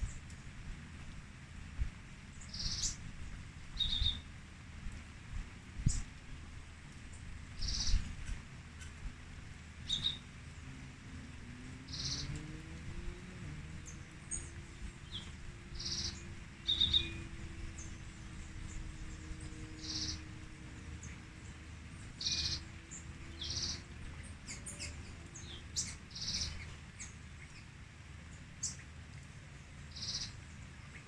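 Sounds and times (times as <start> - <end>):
birds calling: 2.4 - 3.1, 3.7 - 4.3, 7.1 - 29.0, 29.6 - 31.0
thin high bird chirps: 9.9 - 10.3, 15.1 - 17.3, 29.9 - 30.4.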